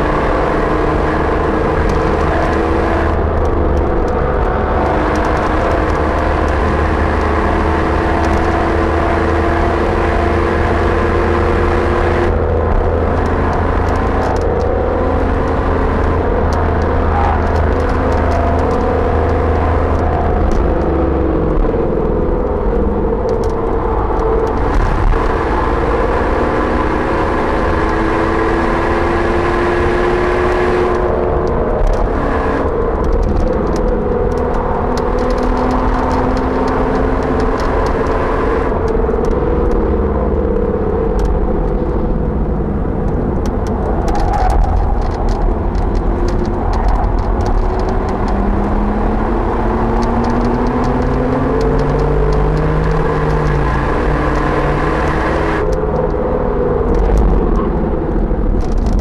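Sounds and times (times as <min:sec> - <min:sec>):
car engine accelerating: 0:00.0 - 0:59.0
road and wind noise: 0:00.0 - 0:59.0
sharp clicks: 0:23.2 - 0:25.4, 0:30.4 - 0:39.8, 0:43.0 - 0:56.2, 0:58.5 - 0:59.0.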